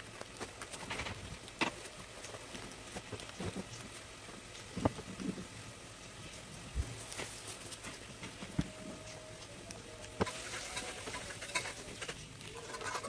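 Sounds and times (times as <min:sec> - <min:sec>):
paper rustling: 0:06.8 - 0:08.7.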